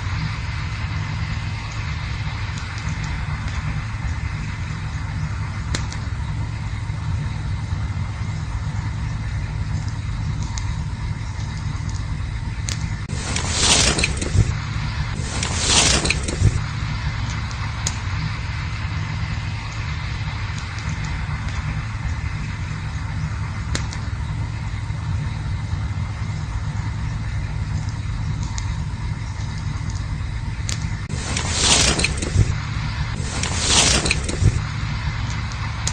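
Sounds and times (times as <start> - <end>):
campfire rumble: 0.0 - 35.9
fire crackles and pops: 0.0 - 35.9
fire flaring up: 0.0 - 35.9
rushing hiss: 13.1 - 22.4, 31.1 - 35.9.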